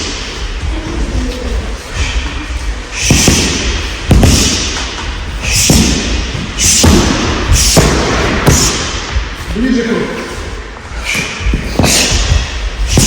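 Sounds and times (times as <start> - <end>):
sharp exhaled breath hiss: 1.9 - 7.8.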